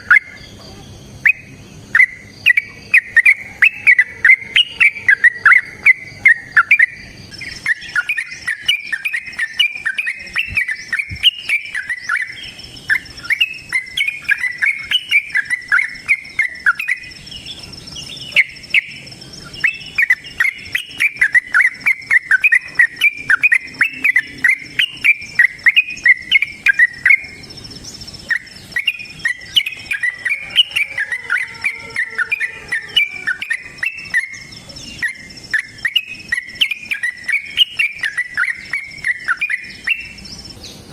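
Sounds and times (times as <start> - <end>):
bulbul singing chattering notes: 0.0 - 40.9
steady high-pitched buzz: 0.0 - 40.9.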